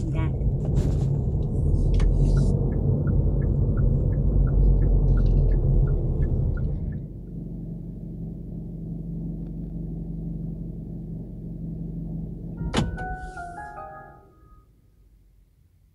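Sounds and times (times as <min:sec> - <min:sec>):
car engine idling: 0:00.0 - 0:13.7
car chime: 0:12.6 - 0:14.6.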